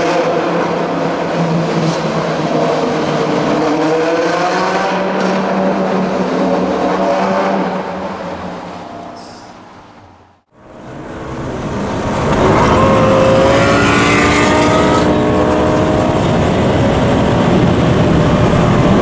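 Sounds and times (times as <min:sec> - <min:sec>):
sports car engine accelerating: 0:10.6 - 0:19.0.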